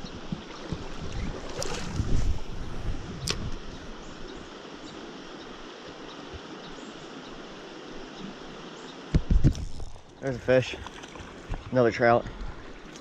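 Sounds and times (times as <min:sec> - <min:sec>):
wind buffeting microphone: 0:00.0 - 0:04.1
stream water running through riffles: 0:00.0 - 0:13.0
sharp click: 0:03.2 - 0:03.5.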